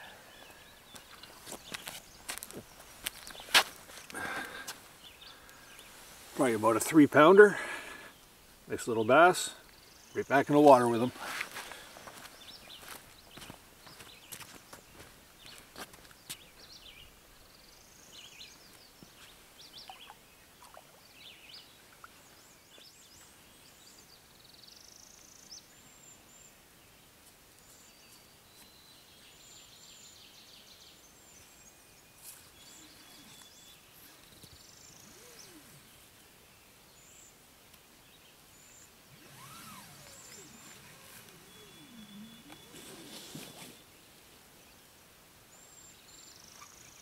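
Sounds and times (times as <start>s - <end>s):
quiet lakeside ambience: 0.0s - 47.0s
birds chirping and whistling: 19.2s - 21.7s, 32.4s - 36.3s, 38.5s - 44.0s.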